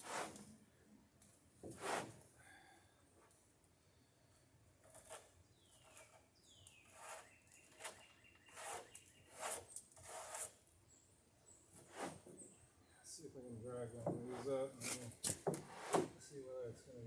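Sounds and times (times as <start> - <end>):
lumber scraping and rustling: 14.0 - 16.3.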